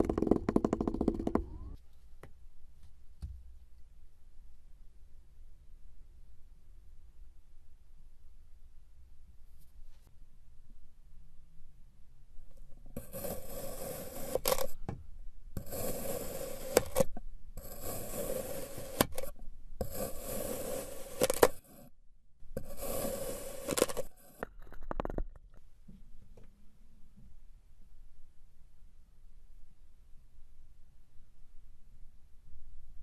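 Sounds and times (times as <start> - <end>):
scraping strokes: 13.0 - 14.8, 15.6 - 21.9, 22.6 - 24.6.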